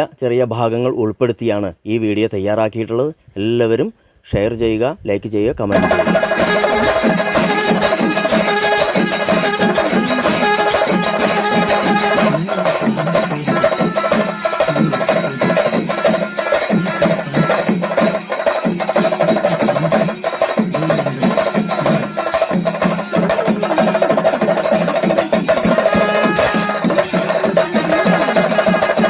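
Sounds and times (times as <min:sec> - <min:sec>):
high wind instrument notes: 0:05.7 - 0:29.0
rapid drumming: 0:05.7 - 0:29.0
steady held tone: 0:05.8 - 0:29.0.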